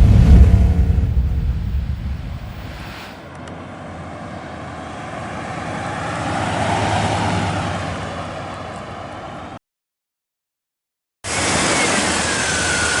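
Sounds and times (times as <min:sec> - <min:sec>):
engine passing by: 0:00.0 - 0:02.9.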